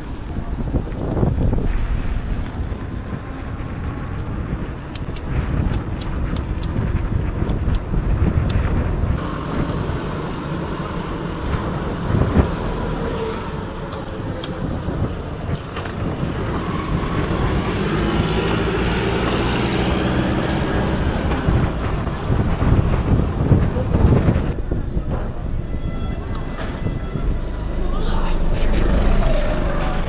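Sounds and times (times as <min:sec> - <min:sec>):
road traffic rumble: 0:00.0 - 0:30.0
vehicle engine drone: 0:00.0 - 0:30.0
wind rush: 0:00.0 - 0:30.0
sharp clicks: 0:04.9 - 0:06.8.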